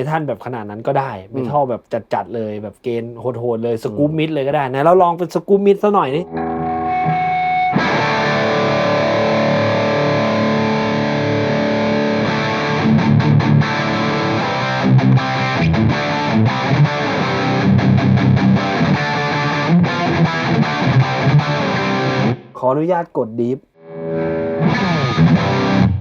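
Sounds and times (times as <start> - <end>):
distorted electric guitar riff: 6.2 - 22.6, 23.8 - 26.0.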